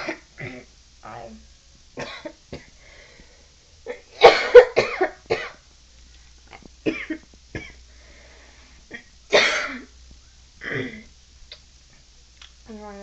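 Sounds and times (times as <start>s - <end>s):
person clearing throat: 0.0s - 0.7s, 10.6s - 11.1s
person coughing: 3.9s - 5.6s, 6.9s - 7.8s, 8.9s - 9.9s, 10.6s - 11.1s.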